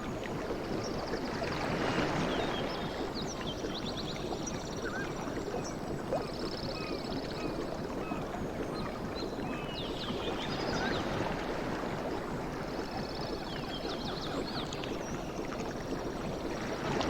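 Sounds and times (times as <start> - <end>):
sea water lapping: 4.6 - 17.0.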